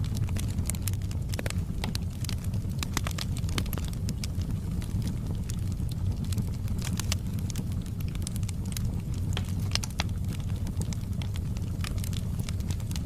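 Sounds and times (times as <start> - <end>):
fire low rumble: 0.0 - 13.0
wood fire crackling and popping: 0.0 - 13.0.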